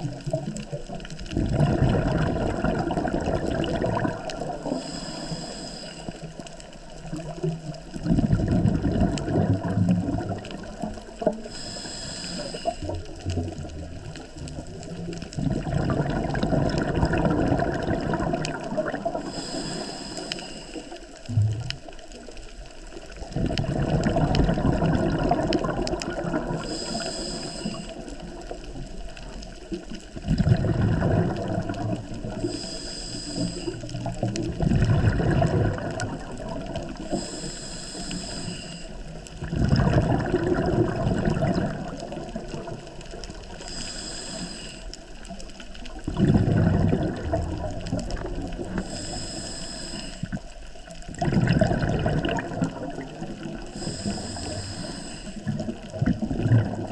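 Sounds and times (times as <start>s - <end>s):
exhaled bubbles bursting: 0.0s - 4.8s, 6.3s - 11.5s, 12.8s - 19.4s, 21.2s - 27.0s, 27.9s - 32.6s, 33.7s - 37.1s, 39.0s - 43.7s, 45.6s - 49.0s, 50.3s - 54.6s, 55.4s - 56.9s
regulator hiss on inhalation: 4.6s - 6.5s, 11.4s - 12.9s, 19.2s - 21.2s, 26.5s - 28.1s, 32.3s - 34.1s, 37.0s - 39.2s, 43.5s - 45.3s, 48.7s - 50.5s, 53.6s - 55.5s.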